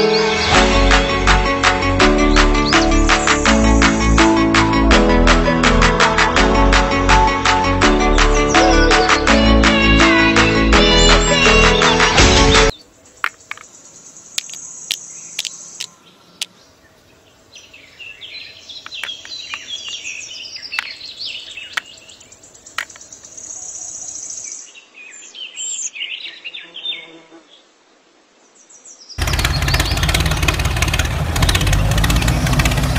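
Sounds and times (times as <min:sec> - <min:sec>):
birds chirping: 0:02.2 - 0:03.5, 0:10.8 - 0:27.7, 0:28.5 - 0:32.9
sharp clicks and taps: 0:13.2 - 0:13.7, 0:14.4 - 0:16.5.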